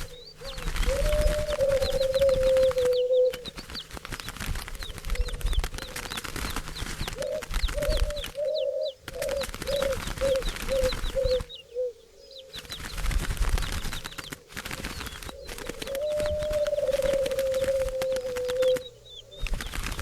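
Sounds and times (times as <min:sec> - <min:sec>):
dove cooing: 0:00.0 - 0:03.6, 0:07.1 - 0:12.6, 0:15.3 - 0:19.6
small birds chirping: 0:00.0 - 0:20.0.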